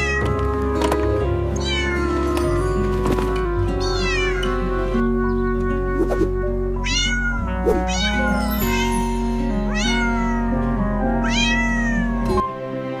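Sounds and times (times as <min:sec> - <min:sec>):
cat meowing: 0:00.0 - 0:00.4, 0:01.6 - 0:02.5, 0:03.8 - 0:04.6, 0:06.8 - 0:09.0, 0:09.7 - 0:10.6, 0:11.2 - 0:12.3
background music: 0:00.0 - 0:13.0.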